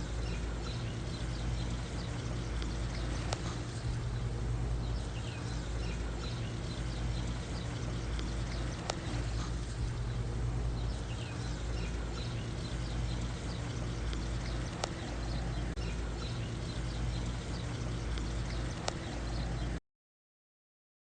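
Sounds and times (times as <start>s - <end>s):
faint sharp ticks: 8.1s - 9.1s, 14.0s - 15.0s, 18.1s - 19.1s.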